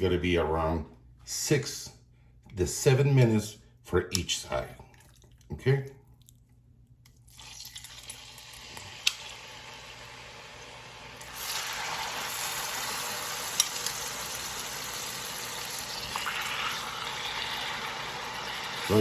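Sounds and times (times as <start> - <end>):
chicken sizzling in oil: 7.5 - 19.0.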